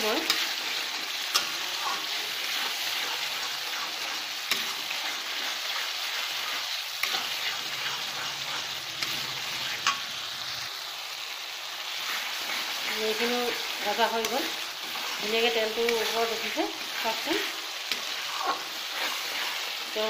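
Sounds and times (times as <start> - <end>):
spices sizzling in hot oil: 0.0 - 20.0
utensil clicking against pan: 1.3 - 2.0.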